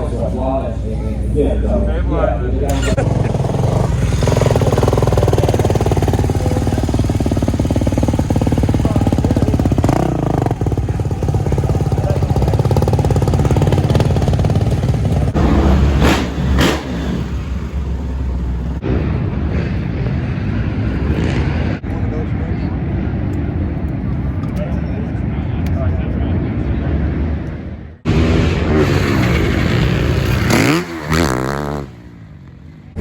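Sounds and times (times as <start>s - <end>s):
dirt bike engine revving: 2.7s - 19.8s, 28.0s - 33.0s.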